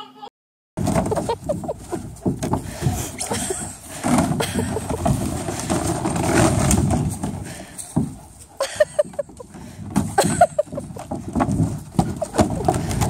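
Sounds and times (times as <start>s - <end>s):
plastic pool scraping over grass: 0.8s - 13.0s.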